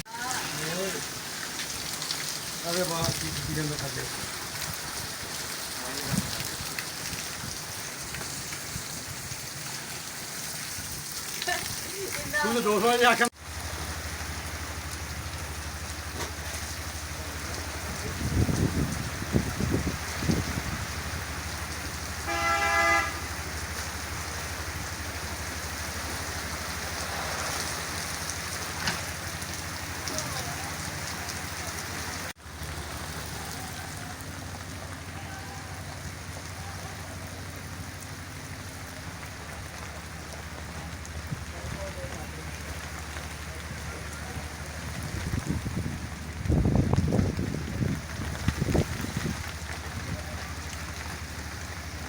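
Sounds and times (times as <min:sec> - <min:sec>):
steady rain falling: 0:00.0 - 0:52.0
short horn toot: 0:22.2 - 0:23.3.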